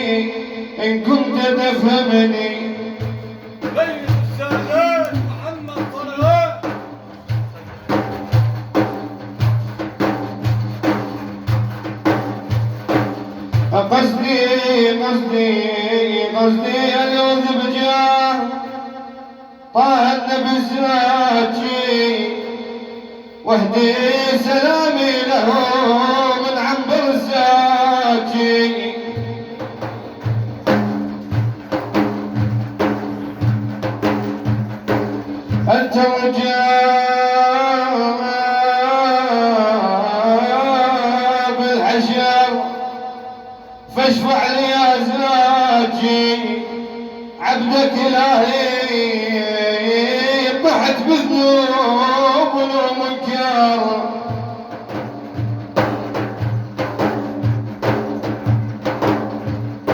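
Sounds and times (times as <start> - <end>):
frame drums playing rhythm: 2.9 - 14.3, 29.1 - 36.0, 54.2 - 59.9.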